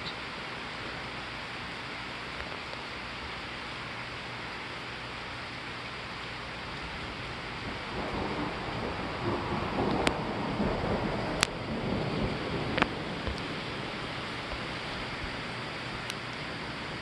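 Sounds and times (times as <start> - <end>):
rain hissing: 0.0 - 17.0
thunder rumbling: 6.7 - 15.9.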